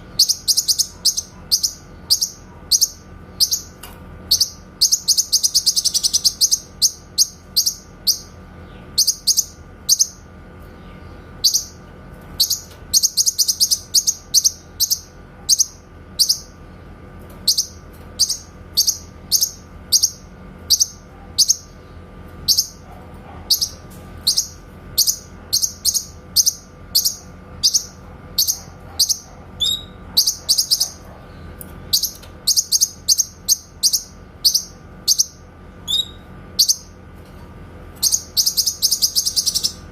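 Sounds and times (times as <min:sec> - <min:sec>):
faint steady hum: 0:00.0 - 0:39.9
bird singing loud whistles: 0:32.0 - 0:36.9.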